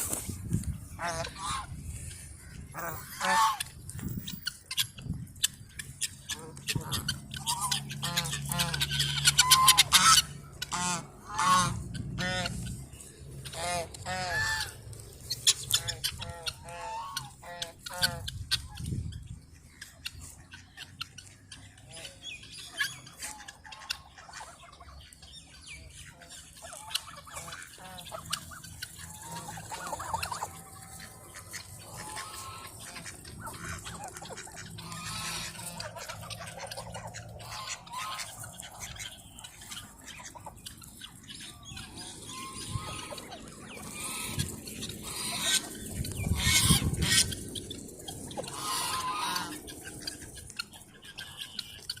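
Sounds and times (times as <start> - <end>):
hens clucking: 0.0 - 52.0.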